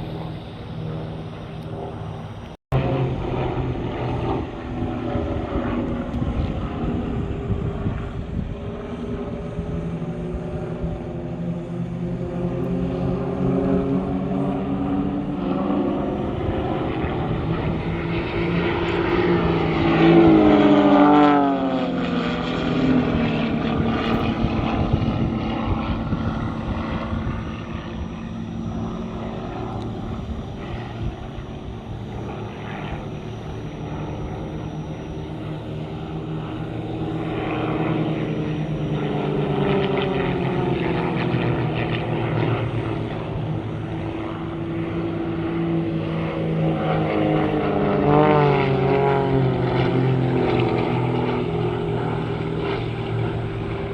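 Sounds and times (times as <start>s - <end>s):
propeller aircraft engine drone: 0.0s - 53.9s.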